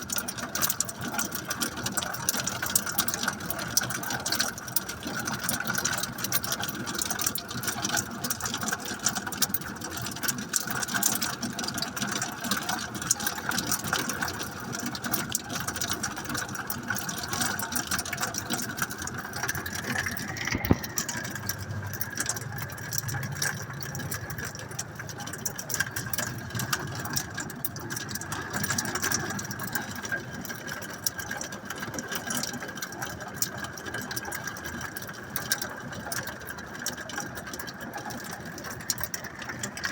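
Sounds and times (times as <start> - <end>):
rain and hail falling: 0.0 - 39.9.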